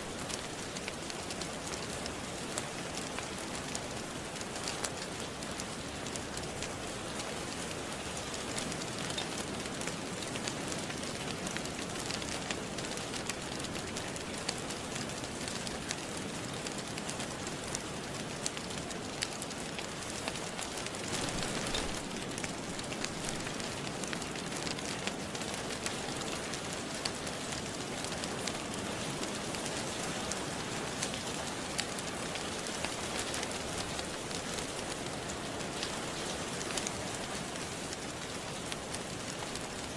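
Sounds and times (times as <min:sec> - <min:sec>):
log fire crackling: 0:00.0 - 0:39.9
steady rain falling: 0:00.0 - 0:39.9.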